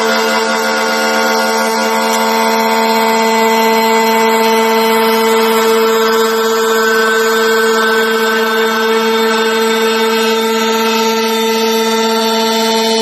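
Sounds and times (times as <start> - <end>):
milling machine whine: 0.0 - 13.0.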